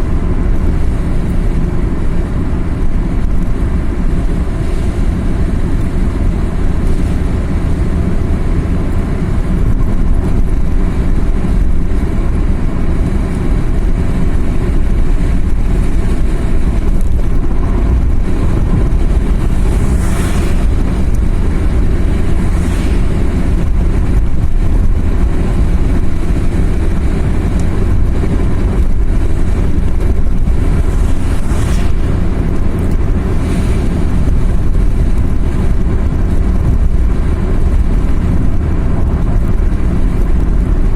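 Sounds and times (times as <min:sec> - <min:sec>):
car engine rumble: 0:00.0 - 0:40.9
road noise: 0:00.0 - 0:40.9
hissing whooshes: 0:17.4 - 0:23.9, 0:30.7 - 0:32.6.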